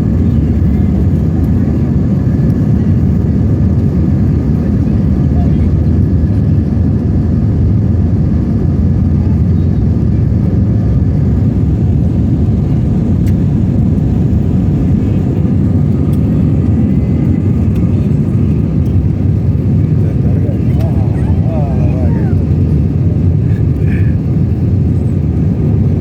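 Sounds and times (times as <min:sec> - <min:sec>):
jet cabin engine rumble: 0:00.0 - 0:26.0.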